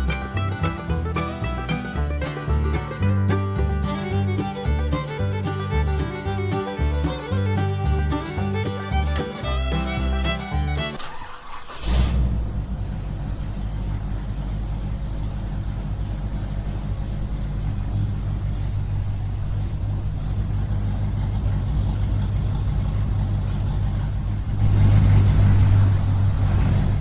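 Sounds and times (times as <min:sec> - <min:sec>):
small engine humming: 0:00.0 - 0:01.8.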